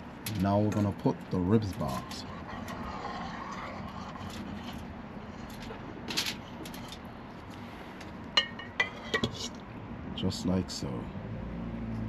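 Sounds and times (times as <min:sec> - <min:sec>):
metal pot clinks: 0:08.4 - 0:09.3.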